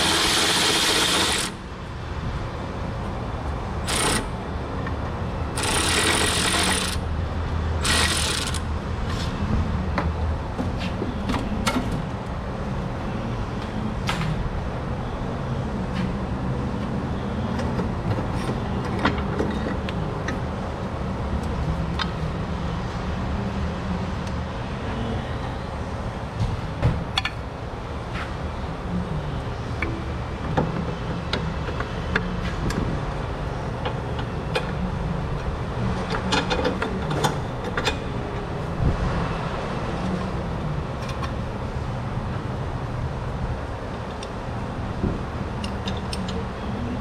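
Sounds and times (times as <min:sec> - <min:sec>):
power tool bursts: 0:00.0 - 0:01.6, 0:05.6 - 0:07.0, 0:07.8 - 0:08.6
low mechanical hum: 0:00.0 - 0:47.0.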